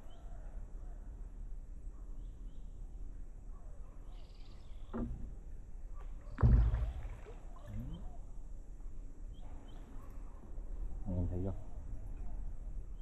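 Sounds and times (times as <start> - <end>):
faint bird chirps: 0.0 - 1.2, 1.9 - 5.1, 7.5 - 8.5, 9.2 - 13.0
loud low thump: 6.4 - 7.2.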